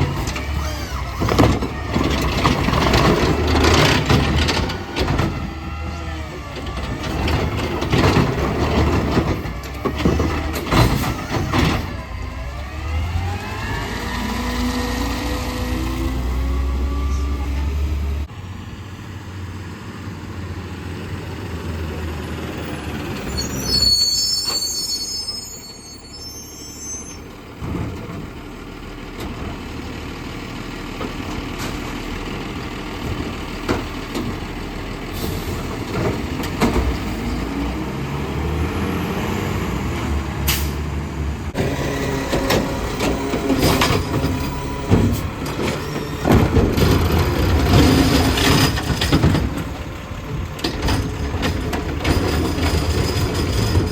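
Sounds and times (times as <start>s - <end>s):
garbage truck engine running: 0.0s - 18.6s, 27.3s - 53.9s
high brake squeal: 22.8s - 27.4s.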